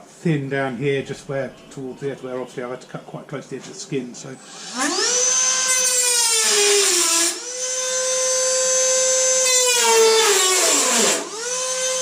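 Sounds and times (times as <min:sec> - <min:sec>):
grinder whining on steel: 0:04.4 - 0:12.0.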